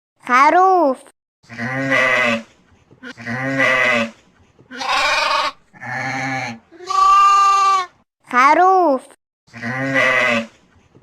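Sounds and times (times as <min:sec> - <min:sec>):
sheep bleating: 0:04.7 - 0:07.9, 0:09.5 - 0:10.5.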